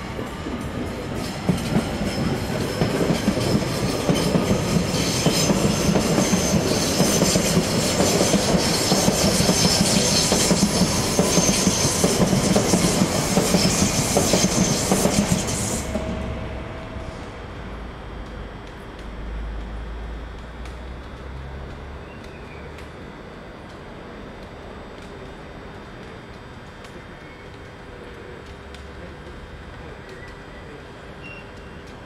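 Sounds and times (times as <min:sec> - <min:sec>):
train wheels clacking: 0:00.0 - 0:18.8.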